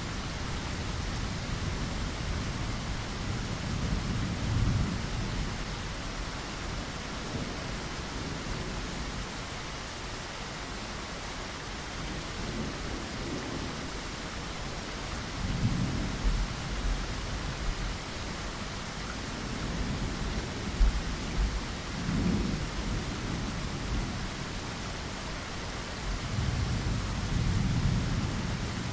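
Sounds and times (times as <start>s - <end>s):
steady rain: 0.0s - 28.9s
low thunder rolls: 15.4s - 17.1s, 19.3s - 24.2s, 26.3s - 28.9s.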